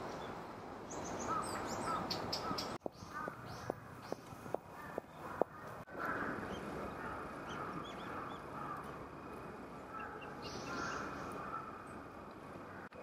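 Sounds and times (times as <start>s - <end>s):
birds calling: 0.1s - 9.0s, 9.7s - 13.0s
high chirps of small birds: 10.0s - 11.5s.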